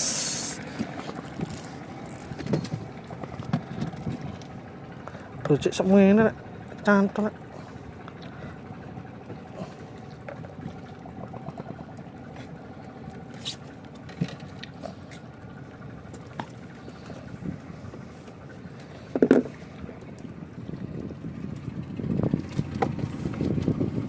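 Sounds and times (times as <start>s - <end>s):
water rumbling around boat: 0.0s - 24.0s
tackle knocking against hull: 19.1s - 19.6s.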